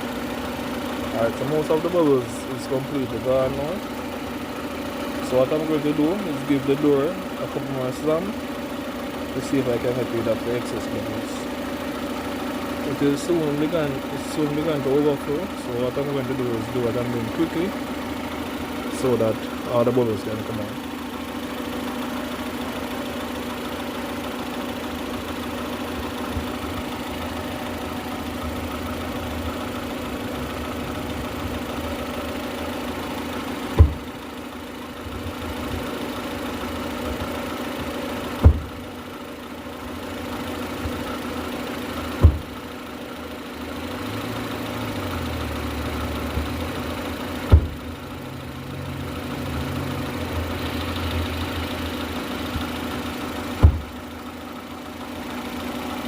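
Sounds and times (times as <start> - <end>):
car engine idling: 0.0 - 56.0
car door slamming: 33.7 - 34.2, 38.4 - 39.0, 42.1 - 42.6, 47.4 - 48.0, 53.6 - 54.1.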